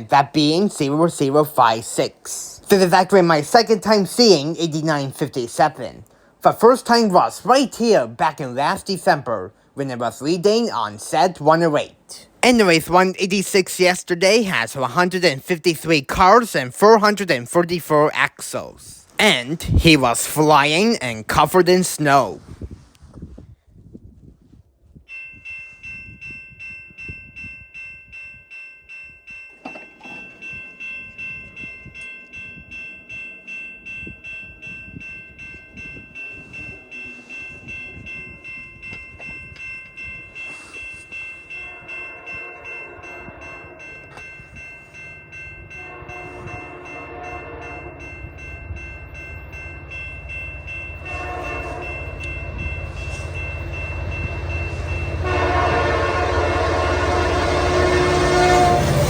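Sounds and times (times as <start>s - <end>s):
crossing bell ringing: 0.0s - 9.3s, 10.2s - 22.4s, 25.1s - 59.0s
train rumble: 29.7s - 59.0s
locomotive air horn blasts: 41.6s - 43.9s, 45.8s - 48.0s, 51.0s - 53.4s, 54.7s - 59.0s.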